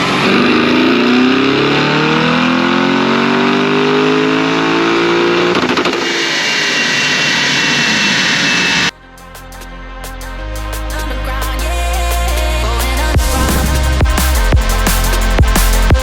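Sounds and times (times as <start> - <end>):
car engine at full throttle: 0.0 - 8.9, 13.2 - 16.0
high whine: 0.0 - 16.0.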